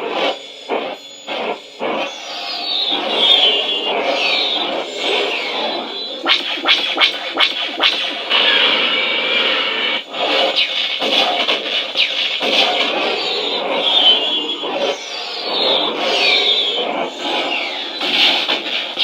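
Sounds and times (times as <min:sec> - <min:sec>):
lightsaber buzzing hum: 0:00.0 - 0:19.0
lightsaber swing whooshes: 0:06.2 - 0:08.8.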